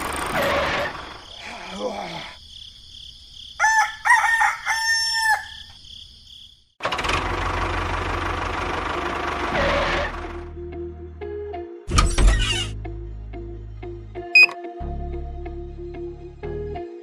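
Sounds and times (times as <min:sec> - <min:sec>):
rooster crowing: 0:03.6 - 0:05.8.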